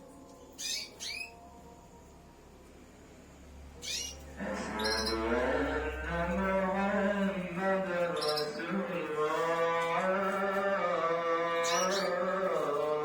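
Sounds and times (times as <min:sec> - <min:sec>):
person singing or chanting: 0:00.0 - 0:02.5, 0:04.2 - 0:13.0
canary chirping: 0:00.3 - 0:01.6, 0:03.7 - 0:13.0.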